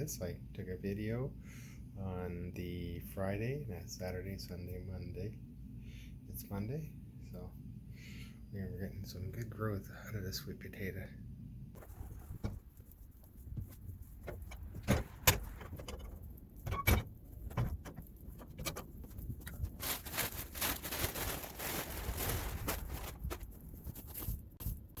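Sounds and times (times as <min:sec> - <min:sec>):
rustling and clattering: 0:11.8 - 0:25.0.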